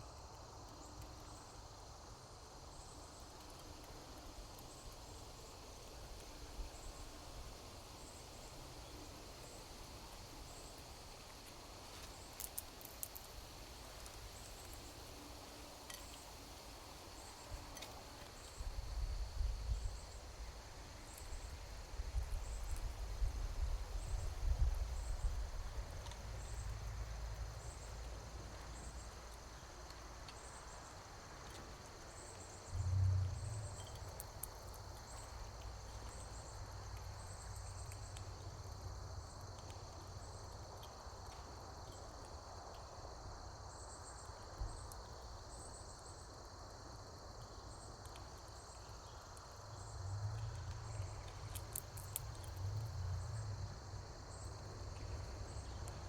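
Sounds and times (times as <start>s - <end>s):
insects chirping: 0.0s - 56.0s
insects droning: 0.0s - 56.0s
low rumbling: 32.8s - 34.0s.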